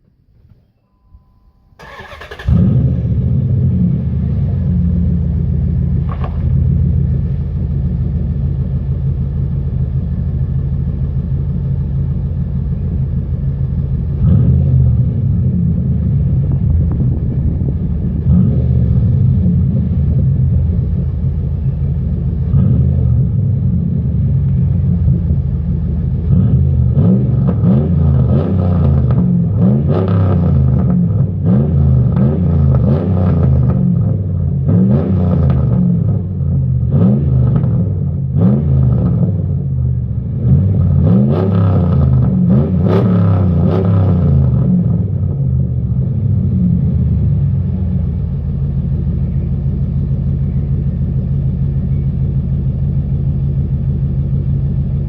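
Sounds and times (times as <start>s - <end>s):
engine revving: 1.8s - 8.4s, 11.0s - 55.0s
loud engine idling: 1.8s - 28.1s, 45.2s - 55.0s.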